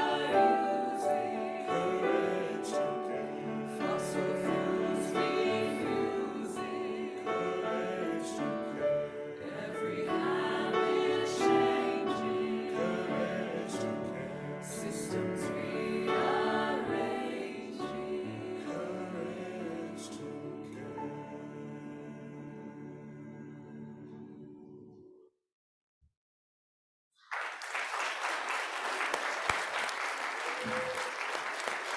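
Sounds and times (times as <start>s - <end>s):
choir singing in harmony: 0.0s - 25.1s.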